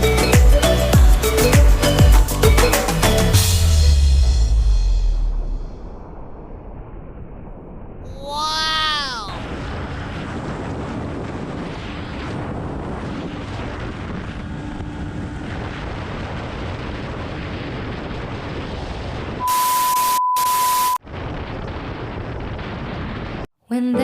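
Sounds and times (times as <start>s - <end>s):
steady rushing noise: 4.1s - 19.4s
loud burst of static: 9.1s - 23.5s
steady high beep: 19.4s - 21.0s.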